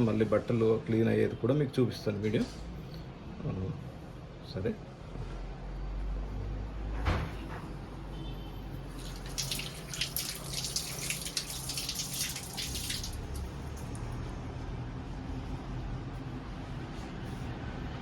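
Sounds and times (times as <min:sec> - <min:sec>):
tap water running and splashing: 0:08.8 - 0:14.0.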